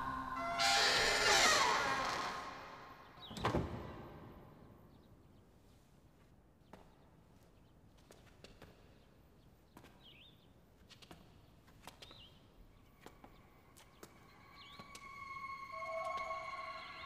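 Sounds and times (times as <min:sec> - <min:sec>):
soft footsteps: 0:10.8 - 0:16.5
faint bird chirps: 0:12.0 - 0:17.0
gentle music: 0:12.9 - 0:17.0.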